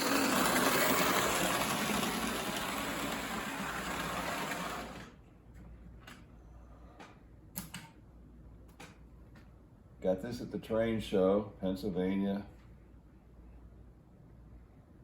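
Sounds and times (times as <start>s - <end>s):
model locomotive whirring: 0.0s - 5.2s.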